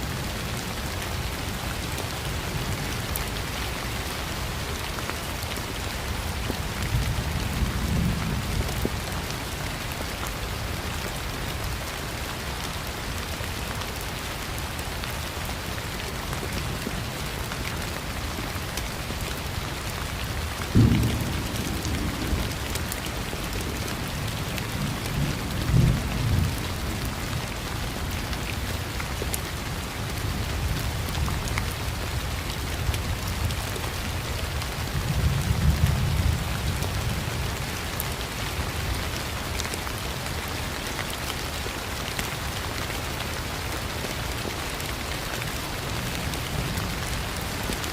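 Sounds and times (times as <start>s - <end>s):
heavy rain falling: 0.0s - 47.9s
rolling thunder rumbles: 20.7s - 26.6s.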